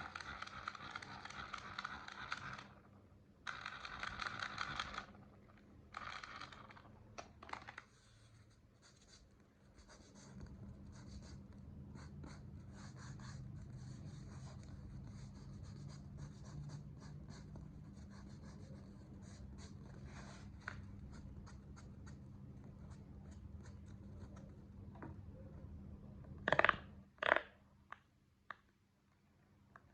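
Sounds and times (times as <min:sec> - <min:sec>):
low steady hum: 0:00.0 - 0:29.9.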